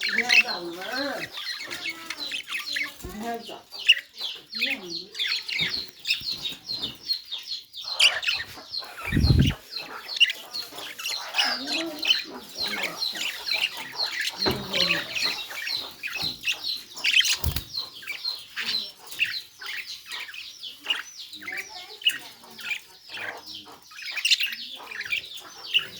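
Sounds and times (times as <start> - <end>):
budgerigars chirping: 0.0 - 25.9
dull low thumps: 9.0 - 9.6.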